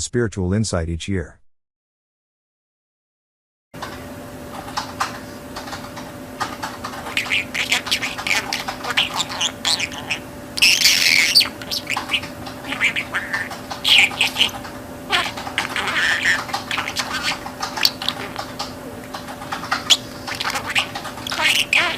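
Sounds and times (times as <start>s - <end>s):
budgerigar chattering and warbling: 6.5s - 21.9s
budgerigar harsh squawk: 7.0s - 18.7s, 19.6s - 21.9s.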